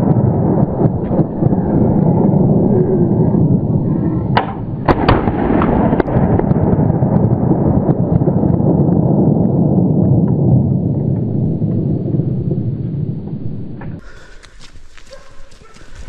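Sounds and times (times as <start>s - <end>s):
wind rumble on microphone: 0.0s - 16.0s
gunshots: 4.4s - 8.1s.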